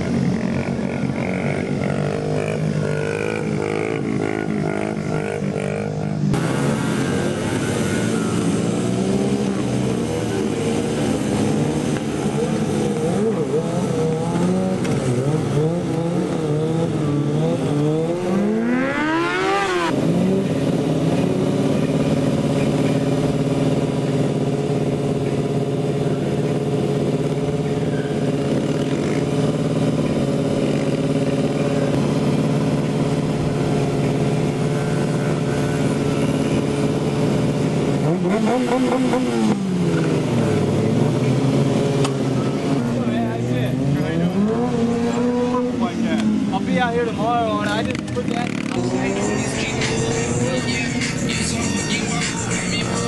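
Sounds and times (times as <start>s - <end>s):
mini-bike engine revving: 0.0s - 22.6s.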